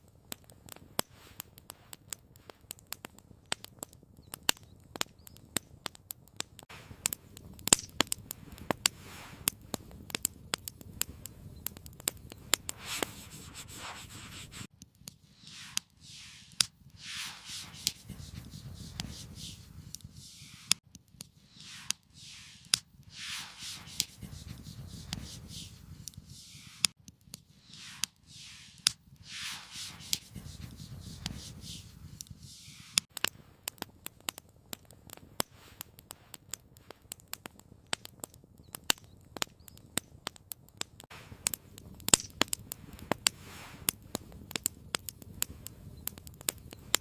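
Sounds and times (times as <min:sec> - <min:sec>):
campfire crackling: 0:00.0 - 0:47.0
rustling strokes: 0:08.2 - 0:10.0, 0:12.2 - 0:33.1, 0:42.8 - 0:43.9.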